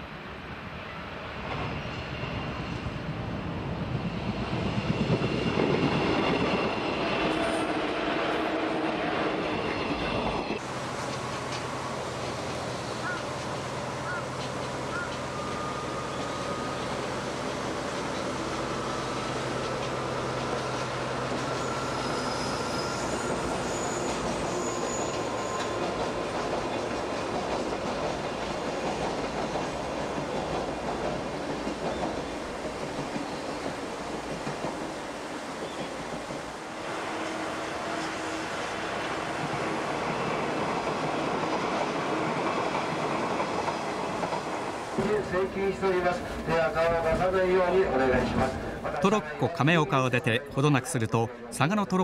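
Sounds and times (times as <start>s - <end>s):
train rolling on rails: 0.0s - 52.0s
high wheel squeals: 20.6s - 26.0s.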